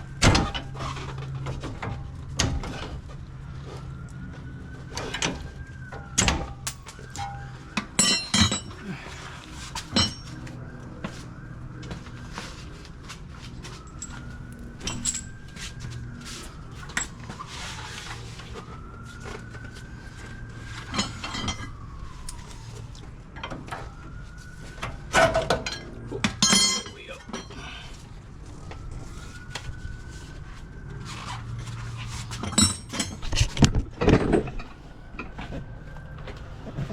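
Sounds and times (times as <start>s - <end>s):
metallic clanks of tools: 8.0s - 8.9s, 9.8s - 10.4s, 13.9s - 15.5s, 26.4s - 27.6s, 32.4s - 33.6s.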